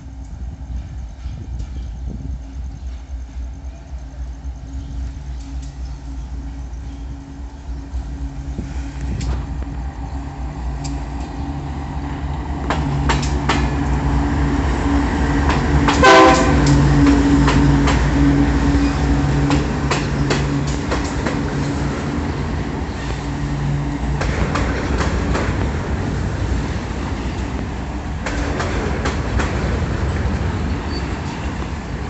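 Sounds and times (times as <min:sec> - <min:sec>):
diesel locomotive engine hum: 0:00.0 - 0:32.0
train horn blast: 0:03.6 - 0:10.2, 0:13.6 - 0:20.8
wheels clicking over rail joints: 0:08.4 - 0:32.0.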